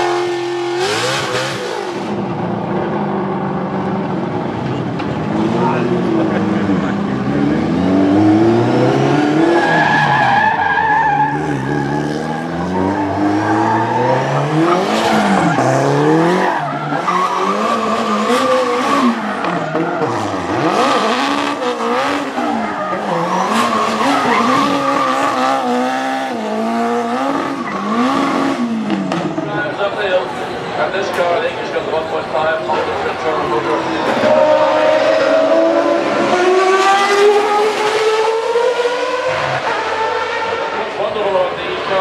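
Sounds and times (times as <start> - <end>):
car engine revving: 0.0 - 30.8, 31.7 - 42.0
tyres squealing: 22.4 - 25.6.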